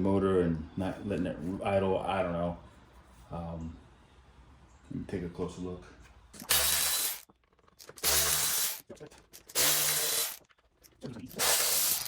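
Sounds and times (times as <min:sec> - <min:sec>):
power tool bursts: 0:06.4 - 0:08.8, 0:09.4 - 0:10.4, 0:11.3 - 0:12.0.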